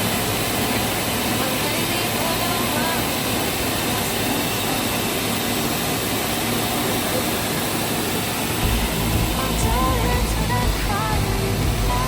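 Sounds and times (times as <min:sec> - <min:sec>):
milling machine hiss and hum: 0:00.0 - 0:12.0.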